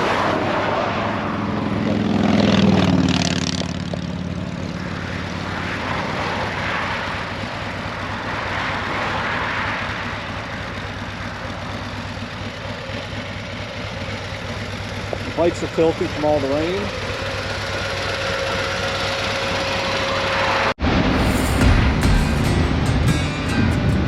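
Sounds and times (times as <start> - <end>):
vehicle engine passing by: 0.0 - 11.7, 15.2 - 24.0
tyre and road noise: 0.0 - 24.0.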